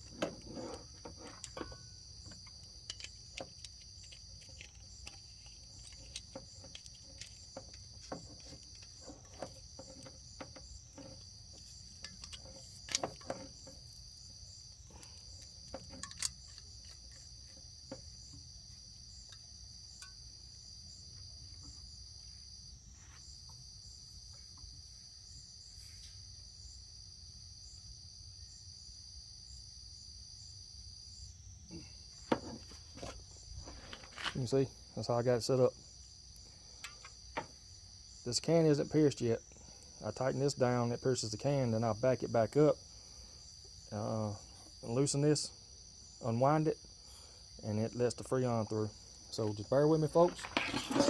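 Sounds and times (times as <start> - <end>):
clicks and knocks of fittings: 0.0 - 14.0, 14.8 - 18.4, 32.3 - 34.5, 36.8 - 37.6
crickets trilling: 0.0 - 51.0.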